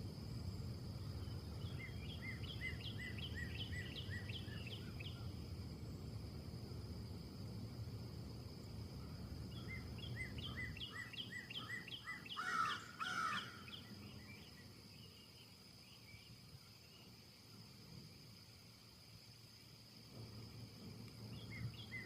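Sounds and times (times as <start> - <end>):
low wind rumble: 0.0 - 22.0
harsh bird calls: 9.5 - 14.4.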